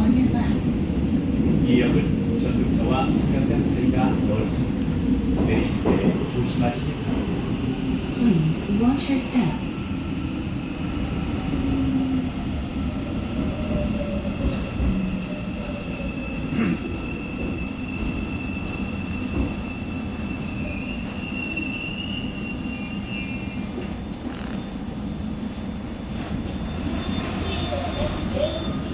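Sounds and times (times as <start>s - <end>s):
train running rumble: 0.0s - 9.8s
train brakes squealing: 13.9s - 28.9s.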